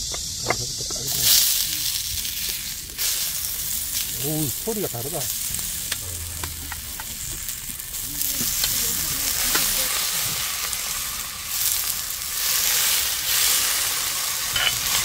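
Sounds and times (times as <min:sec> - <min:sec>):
food sizzling on griddle: 0:00.0 - 0:15.0
tongs clicking on pan: 0:08.4 - 0:10.8, 0:14.4 - 0:15.0.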